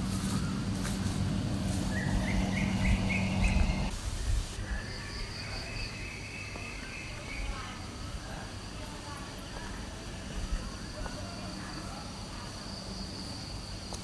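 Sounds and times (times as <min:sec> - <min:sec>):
steady low hum: 0:00.0 - 0:03.9
birds chirping: 0:00.0 - 0:08.1.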